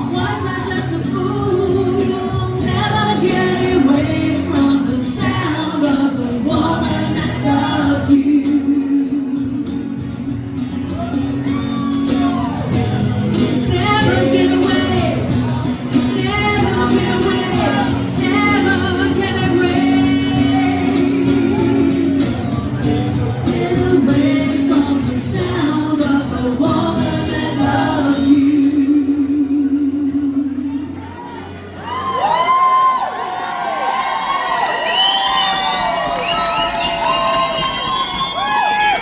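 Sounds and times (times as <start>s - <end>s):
person singing: 0.0s - 10.0s, 12.0s - 31.1s
live band playing: 0.0s - 32.2s.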